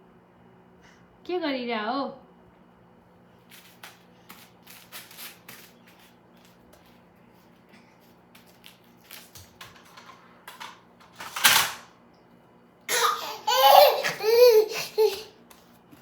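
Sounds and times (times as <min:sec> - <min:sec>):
toddler laughing and squealing: 0:12.9 - 0:15.4.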